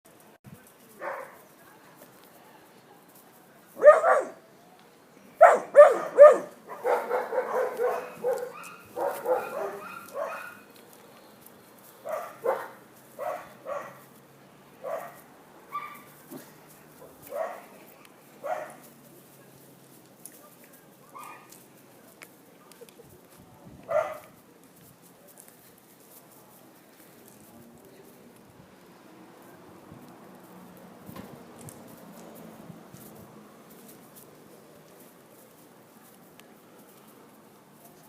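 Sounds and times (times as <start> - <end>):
puppy barking and yipping: 3.8 - 4.4, 5.4 - 10.7, 12.0 - 14.0, 14.8 - 16.2, 17.2 - 17.7, 18.4 - 18.8, 21.1 - 21.6, 23.9 - 24.2.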